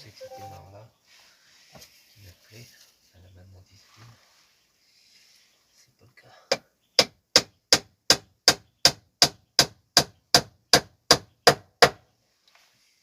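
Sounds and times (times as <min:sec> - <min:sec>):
hammer driving nail into wood: 0:07.0 - 0:12.0.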